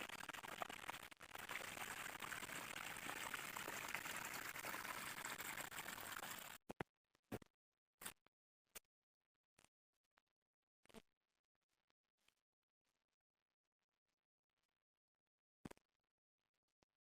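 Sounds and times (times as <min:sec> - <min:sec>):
running water: 0:00.0 - 0:06.6.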